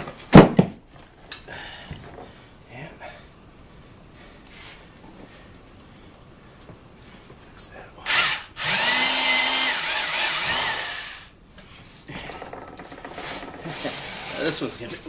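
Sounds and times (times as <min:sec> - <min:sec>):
electric drill boring through wood: 0:08.1 - 0:11.3.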